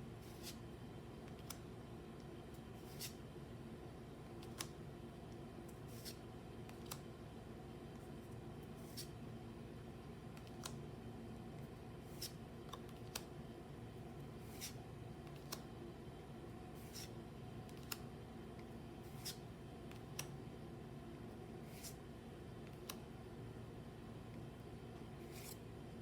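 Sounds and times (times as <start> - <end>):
steady low hum: 0.0 - 26.0
trading cards sliding and clicking: 0.2 - 0.6, 2.6 - 3.2, 5.7 - 7.1, 8.7 - 9.2, 12.0 - 13.3, 14.4 - 15.7, 16.7 - 18.1, 19.0 - 20.4, 21.6 - 22.0, 25.2 - 25.6.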